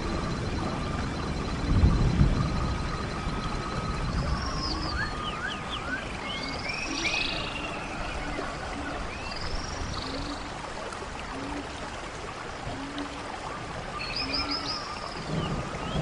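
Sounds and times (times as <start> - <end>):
steady background hiss: 0.0 - 16.0
birds chirping and whistling: 2.3 - 10.4, 14.0 - 16.0.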